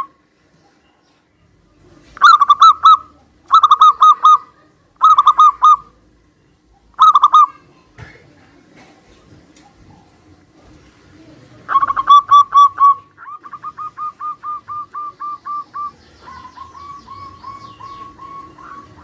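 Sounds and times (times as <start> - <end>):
doves cooing: 2.2 - 7.6, 11.6 - 19.0.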